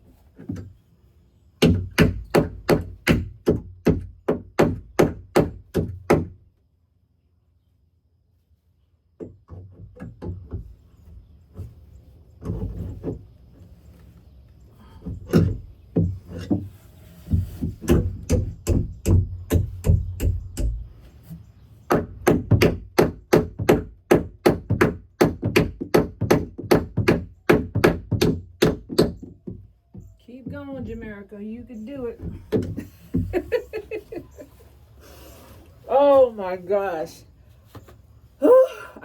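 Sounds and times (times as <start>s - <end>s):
hammer striking nail into wood: 1.6s - 6.3s, 17.8s - 20.8s, 21.9s - 29.3s.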